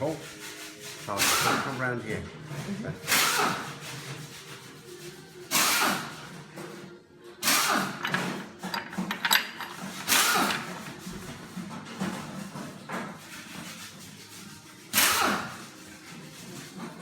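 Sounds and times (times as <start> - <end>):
ratchet spanner clicking: 7.6 - 10.8.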